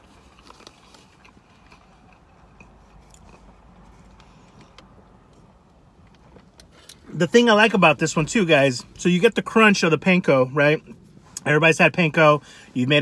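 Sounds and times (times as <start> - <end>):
quiet chewing with mouth clicks: 0.0 - 7.1.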